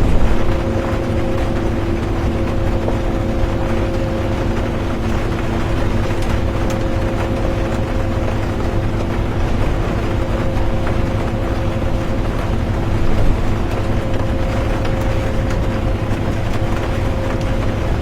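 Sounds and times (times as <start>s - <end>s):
road rumble: 0.0s - 8.2s
bus engine droning: 0.0s - 18.0s.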